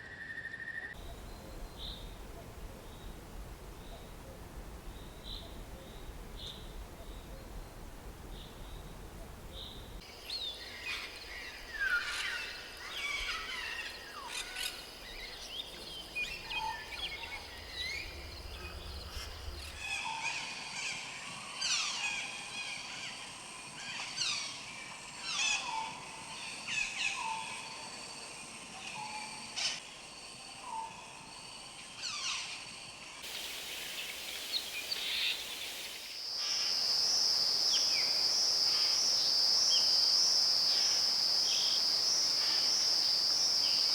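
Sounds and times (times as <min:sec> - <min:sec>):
birds chirping: 0:01.0 - 0:19.8, 0:33.3 - 0:36.2
insect trill: 0:01.0 - 0:19.9, 0:33.2 - 0:43.9.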